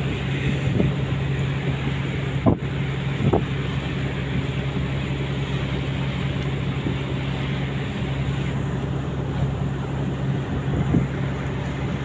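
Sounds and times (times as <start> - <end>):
ship machinery humming: 0.0 - 12.0.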